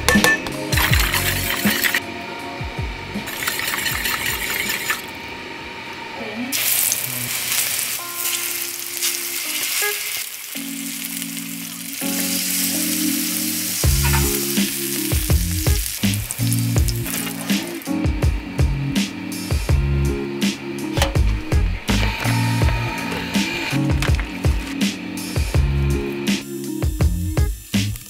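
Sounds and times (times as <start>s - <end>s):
background music: 0.0s - 5.2s, 8.0s - 28.0s
vegetables sizzling in frying pan: 6.5s - 18.0s.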